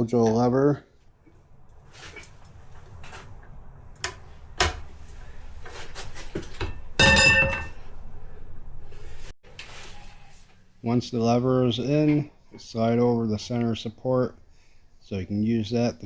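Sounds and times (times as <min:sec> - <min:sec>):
ringing metal clank: 0:06.6 - 0:07.9.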